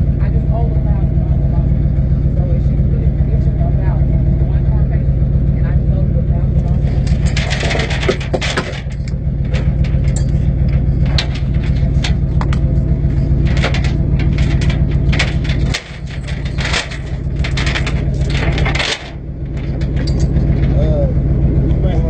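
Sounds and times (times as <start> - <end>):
truck engine idling: 0.0 - 22.0
metallic clicks and rattles: 6.6 - 20.8.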